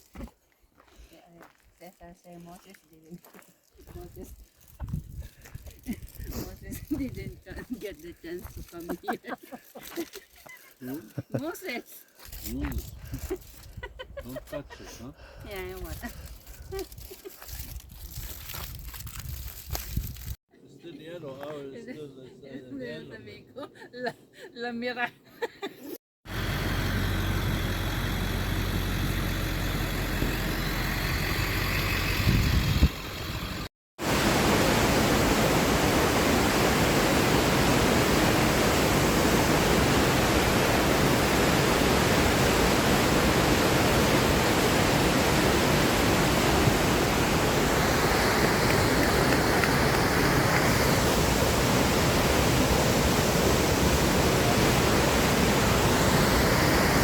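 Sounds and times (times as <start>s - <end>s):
waterfall roaring: 34.0s - 57.0s.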